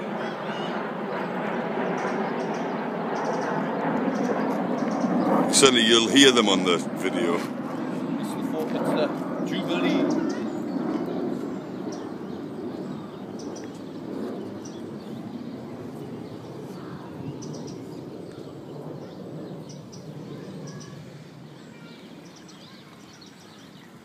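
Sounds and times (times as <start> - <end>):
aircraft rumble overhead: 0.0 - 24.0
birds chirping: 0.0 - 24.0.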